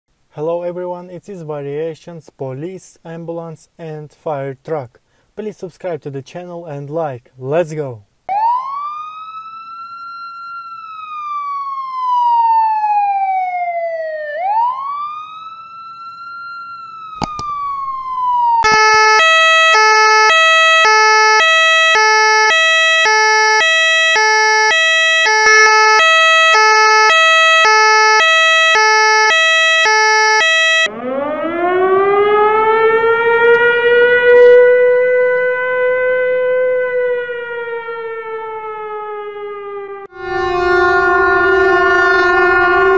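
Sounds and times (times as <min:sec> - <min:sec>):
siren wailing: 0:08.3 - 0:42.9
two-tone hi-lo siren: 0:08.3 - 0:42.9
siren winding up: 0:17.1 - 0:34.8, 0:39.9 - 0:42.9.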